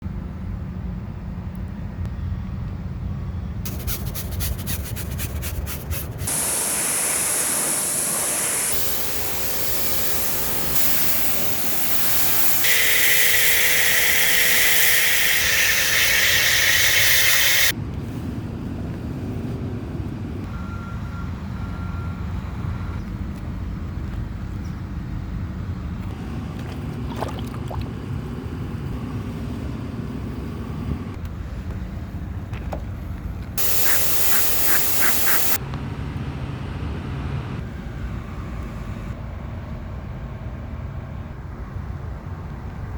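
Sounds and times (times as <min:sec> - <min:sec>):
water spraying hiss: 0:03.7 - 0:17.7, 0:33.6 - 0:35.6.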